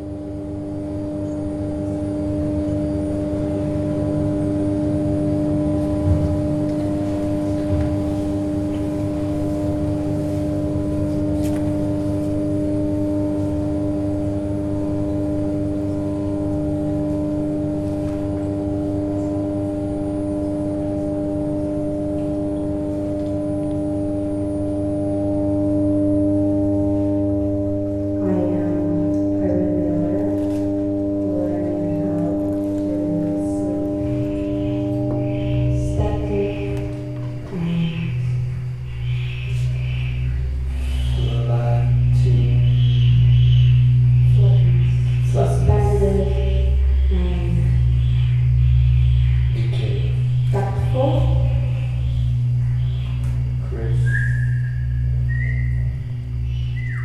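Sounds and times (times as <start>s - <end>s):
musical drone: 0.0s - 57.0s
wavering voice-like line: 28.1s - 57.0s.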